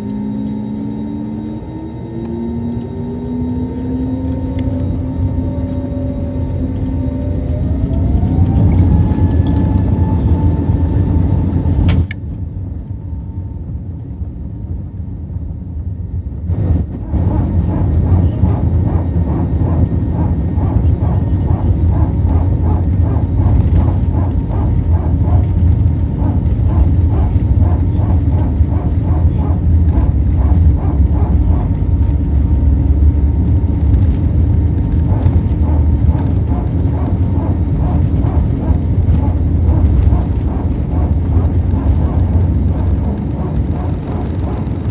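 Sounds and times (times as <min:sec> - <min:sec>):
airplane cabin engine rumble: 0:00.0 - 0:44.9
click: 0:11.8 - 0:12.2.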